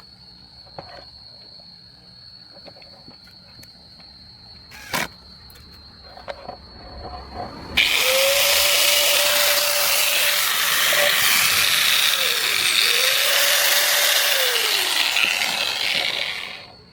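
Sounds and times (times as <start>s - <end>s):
angle grinder whirring: 4.7s - 5.1s, 7.8s - 16.8s.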